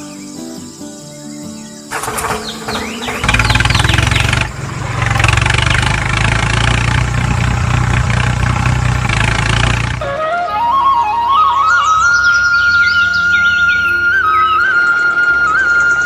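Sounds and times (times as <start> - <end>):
engine starting and idling: 1.9 - 10.1.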